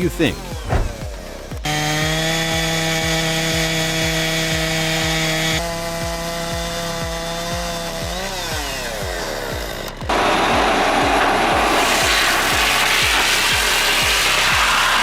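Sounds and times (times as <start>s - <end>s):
low thudding beat: 0.0s - 1.6s
chainsaw running at high revs: 1.6s - 15.0s.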